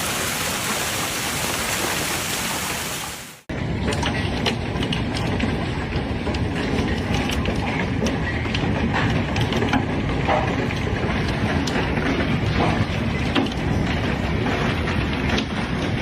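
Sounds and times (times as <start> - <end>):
hail falling roar: 0.0 - 3.3.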